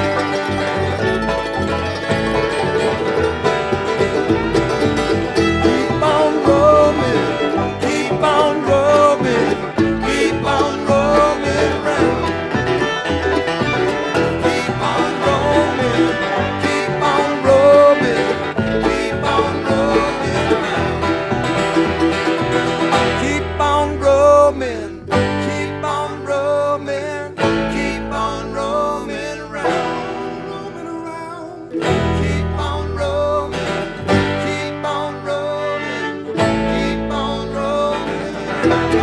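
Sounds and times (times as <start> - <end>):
bass pulse: 0.0 - 25.8
acoustic guitar melody: 0.0 - 39.0
banjo rolls: 0.0 - 39.0.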